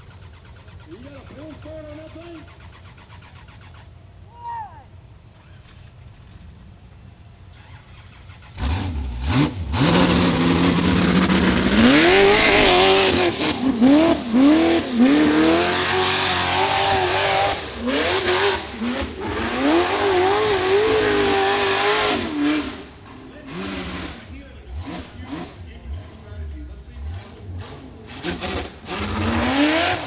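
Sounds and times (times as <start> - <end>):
buggy engine revving hard: 0.0 - 4.3, 7.5 - 30.0.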